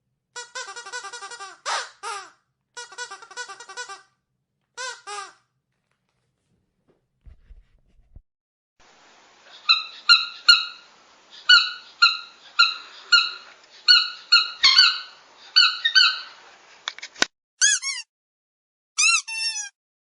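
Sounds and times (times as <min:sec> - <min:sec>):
squeaky dog toy squeaking: 0:00.4 - 0:04.1, 0:04.8 - 0:05.4, 0:17.6 - 0:18.1, 0:19.0 - 0:19.8
faint hiss: 0:08.8 - 0:13.9.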